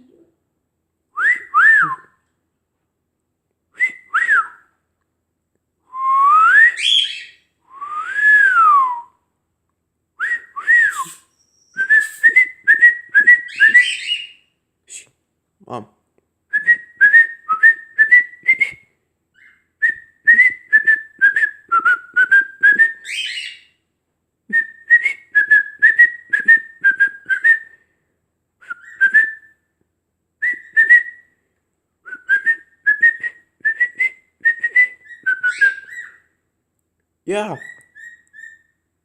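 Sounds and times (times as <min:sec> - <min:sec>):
bird whistling a tune: 0:06.0 - 0:09.1, 0:10.2 - 0:14.4, 0:16.6 - 0:23.7, 0:24.5 - 0:27.8, 0:28.6 - 0:29.6, 0:30.4 - 0:31.3, 0:32.1 - 0:36.3, 0:37.6 - 0:38.8.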